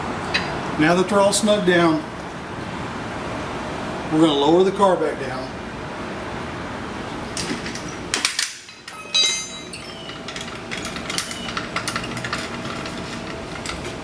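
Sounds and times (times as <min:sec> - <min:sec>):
car jack metal clank: 0:07.4 - 0:14.0.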